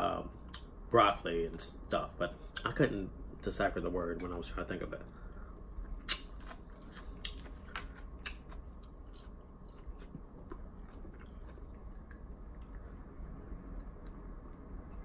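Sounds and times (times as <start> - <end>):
person chewing food: 5.6 - 13.1.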